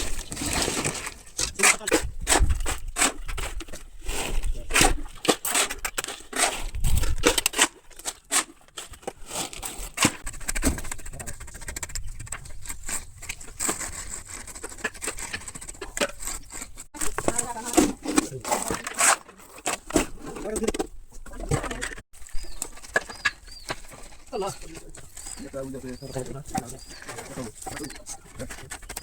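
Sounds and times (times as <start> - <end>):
hand tools scraping concrete: 0.0 - 20.8, 21.4 - 29.0
people talking: 1.4 - 2.1, 17.0 - 19.1, 20.3 - 22.0, 24.3 - 28.7.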